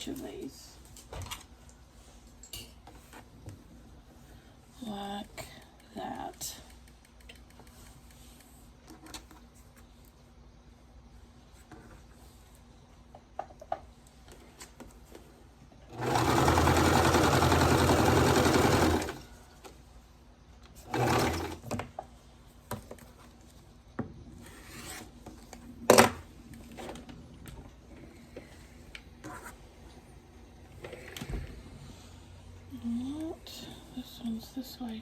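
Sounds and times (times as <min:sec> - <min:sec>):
sewing machine stitching: 0:15.9 - 0:19.2, 0:20.8 - 0:21.7.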